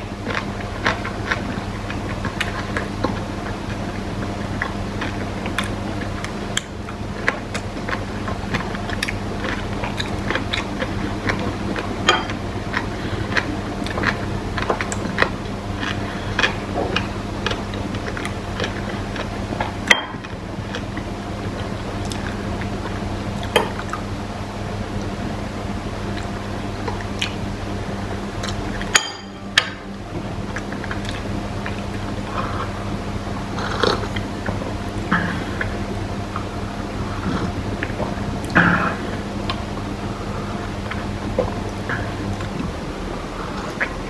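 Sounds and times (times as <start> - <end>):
person chewing and biting: 4.6 - 19.9.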